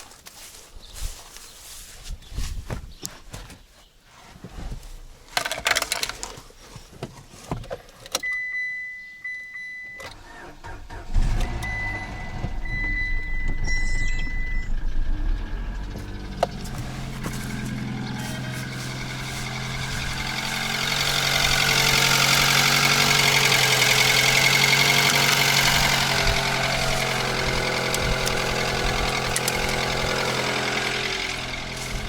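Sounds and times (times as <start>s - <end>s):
engine running steadily: 10.2s - 32.0s.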